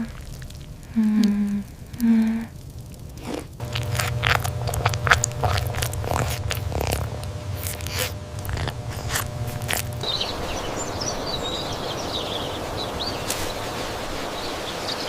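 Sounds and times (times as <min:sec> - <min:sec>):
crisp clicks and crunches: 0:00.0 - 0:10.1
steady low hum: 0:03.6 - 0:14.8.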